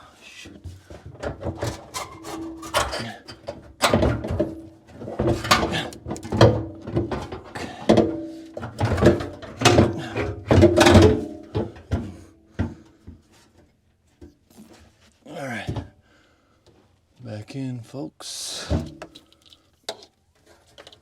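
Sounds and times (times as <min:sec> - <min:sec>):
knocks bumps and scrapes on metal: 0:00.7 - 0:13.5.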